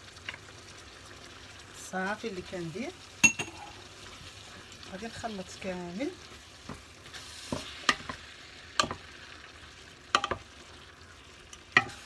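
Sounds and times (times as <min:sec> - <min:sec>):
food sizzling in a frying pan: 0:00.0 - 0:12.0
spoon knocking against pan: 0:03.2 - 0:03.7, 0:08.8 - 0:09.0, 0:10.1 - 0:10.4, 0:11.8 - 0:12.0.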